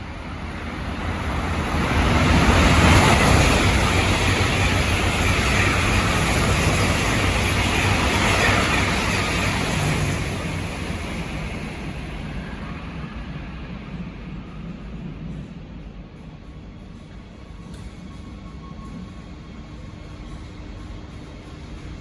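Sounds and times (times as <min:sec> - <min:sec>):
high-speed train passing: 0:00.0 - 0:22.0.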